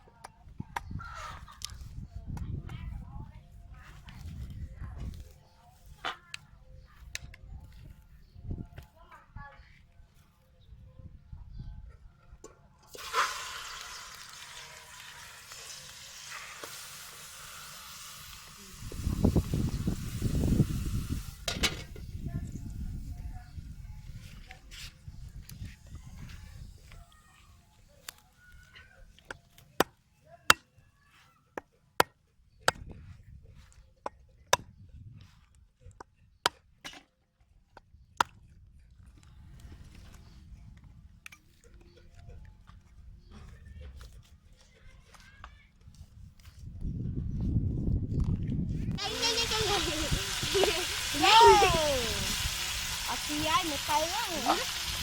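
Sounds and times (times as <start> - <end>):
food sizzling in a hot pan: 12.9 - 21.5, 49.0 - 55.0.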